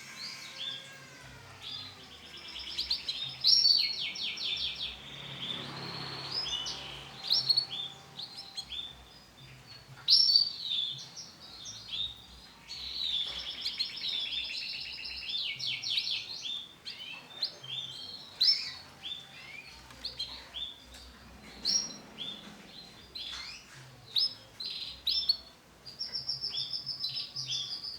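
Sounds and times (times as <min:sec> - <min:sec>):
canary singing: 0:00.0 - 0:27.9.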